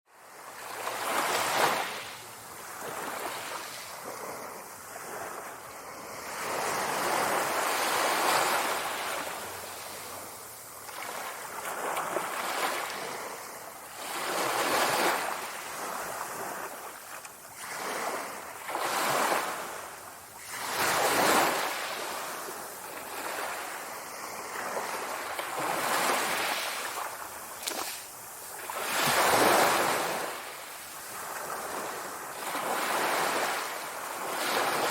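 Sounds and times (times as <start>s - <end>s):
sea waves breaking on shore: 0.2s - 34.9s.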